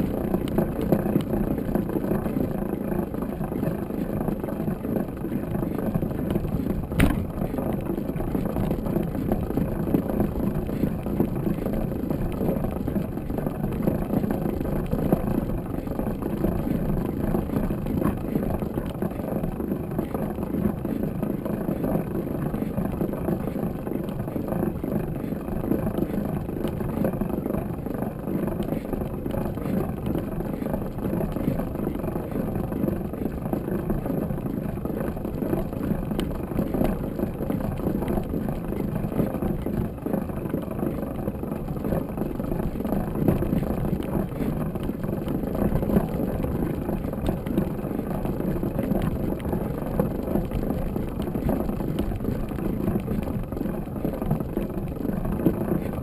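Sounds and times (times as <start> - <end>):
wind buffeting microphone: 0.0 - 56.0
sharp knock: 7.0 - 7.2.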